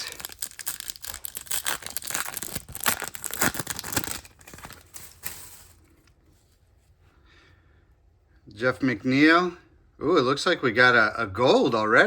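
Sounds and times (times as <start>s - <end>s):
wrapper tearing and crinkling: 0.0s - 5.9s.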